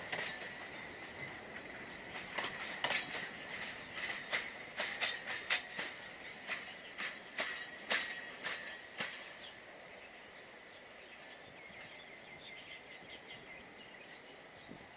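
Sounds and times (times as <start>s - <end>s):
train wheels clicking over rail joints: 0.0s - 9.8s.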